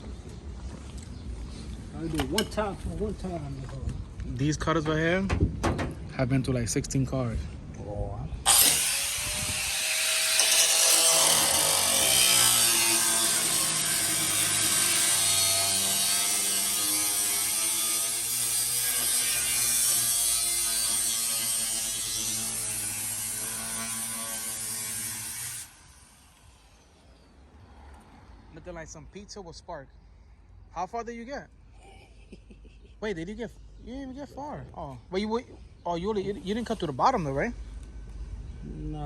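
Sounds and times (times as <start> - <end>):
angle grinder cutting metal: 8.5 - 26.8.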